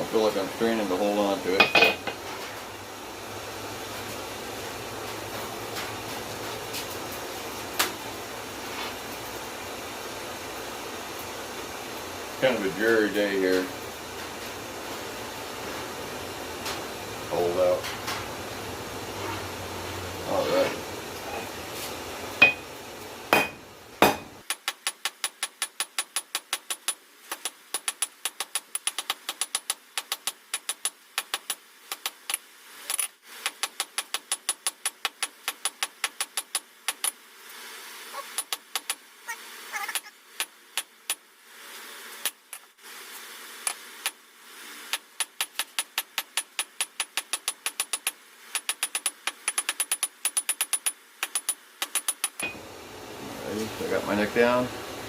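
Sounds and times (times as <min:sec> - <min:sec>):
hammer striking steel anvil: 0:22.4 - 0:22.7, 0:23.3 - 0:24.4, 0:52.4 - 0:52.6.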